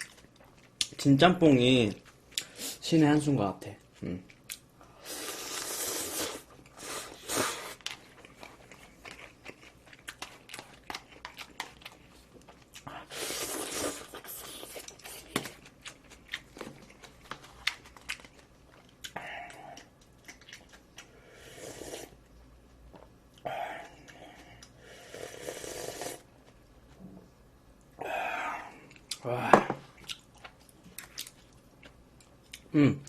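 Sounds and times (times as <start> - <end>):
noodle slurping: 5.1 - 7.8, 25.0 - 26.2
chewing: 6.4 - 21.2, 29.9 - 32.7.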